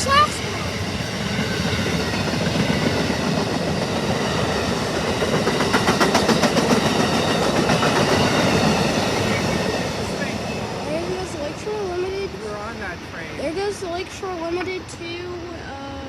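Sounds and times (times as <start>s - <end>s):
passenger train rumbling past: 0.0s - 16.0s
train wheels clicking over rail joints: 1.2s - 10.3s.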